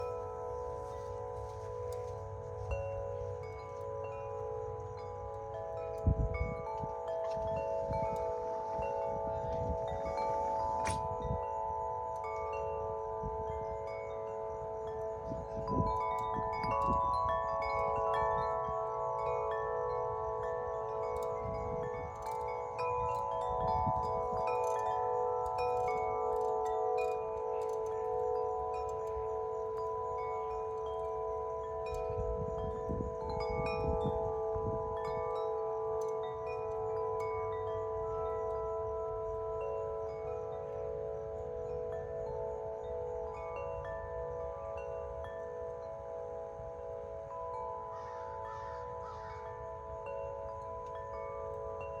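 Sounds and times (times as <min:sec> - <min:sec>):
wind buffeting microphone: 0:00.0 - 0:18.8, 0:20.4 - 0:25.6, 0:27.9 - 0:35.4
wind chimes ringing: 0:00.0 - 0:52.0.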